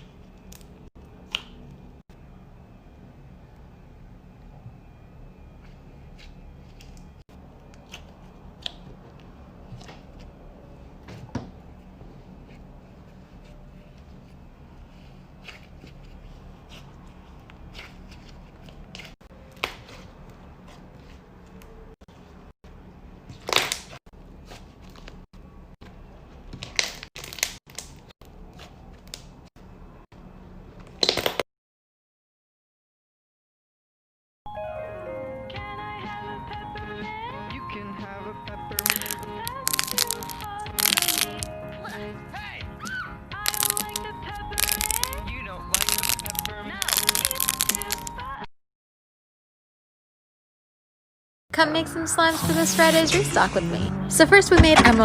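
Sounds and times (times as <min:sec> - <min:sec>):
slime crackling crunches: 0:38.8 - 0:41.5, 0:43.5 - 0:48.1
slime squished by hand: 0:38.8 - 0:41.5
small clicks and pops: 0:43.5 - 0:45.2, 0:45.8 - 0:48.1.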